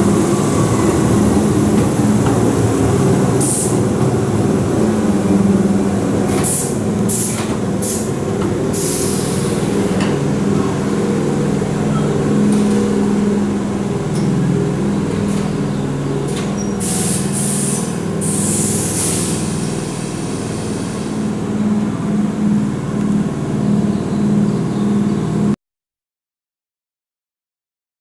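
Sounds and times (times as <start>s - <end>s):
electric train humming: 0.0s - 25.5s
air brake hisses: 8.7s - 9.8s, 16.8s - 21.3s.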